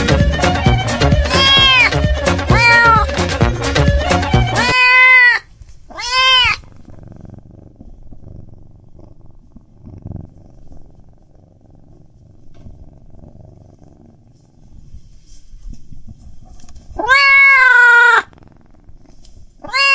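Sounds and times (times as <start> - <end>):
cat purring: 0.0 - 4.8, 5.5 - 19.9
cat meowing: 1.1 - 3.2, 4.4 - 6.8, 17.0 - 18.3, 19.6 - 19.9.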